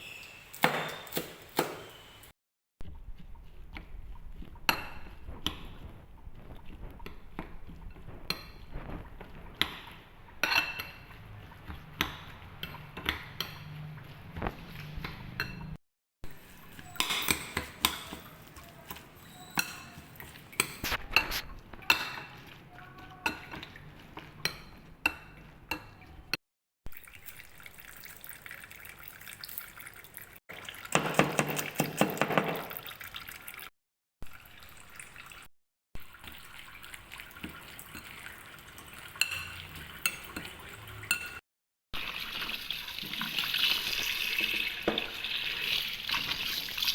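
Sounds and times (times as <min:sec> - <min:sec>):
utensils clinking on dishes: 0:00.0 - 0:02.3, 0:15.3 - 0:22.4, 0:37.8 - 0:41.4
liquid pouring: 0:26.9 - 0:33.7, 0:34.3 - 0:35.5, 0:36.1 - 0:41.1, 0:42.0 - 0:46.9.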